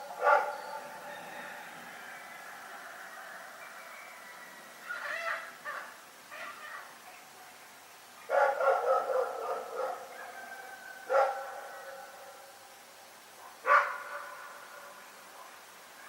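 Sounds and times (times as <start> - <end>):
dog barking: 0.1 - 0.7, 8.3 - 10.5, 11.1 - 12.1, 13.4 - 15.6.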